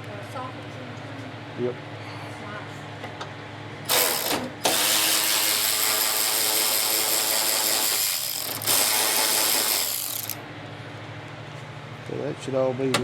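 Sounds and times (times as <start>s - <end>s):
power ratchet spinning bolt: 3.9s - 10.4s.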